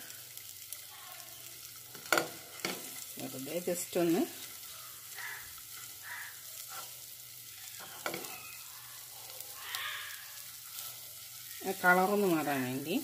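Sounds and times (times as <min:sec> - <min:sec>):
eggs sizzling in a pan: 0:00.0 - 0:13.0
wooden spatula scraping a pan: 0:06.6 - 0:08.5.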